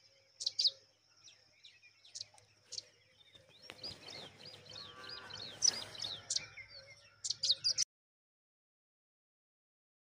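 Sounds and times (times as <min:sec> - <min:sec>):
small birds chirping: 0:00.0 - 0:07.9.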